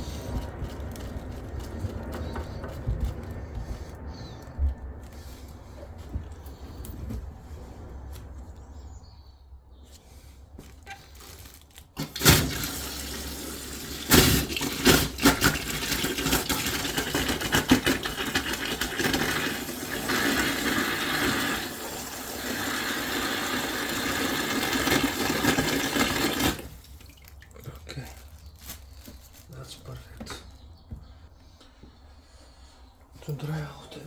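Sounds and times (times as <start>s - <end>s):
knocks and clatters: 0.0s - 7.8s
water rushing from pipe: 12.0s - 27.5s.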